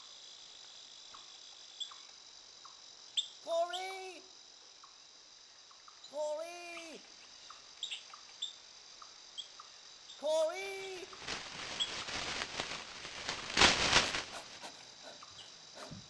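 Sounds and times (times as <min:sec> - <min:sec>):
person shouting: 0:03.5 - 0:04.3, 0:06.2 - 0:07.0, 0:10.2 - 0:11.1.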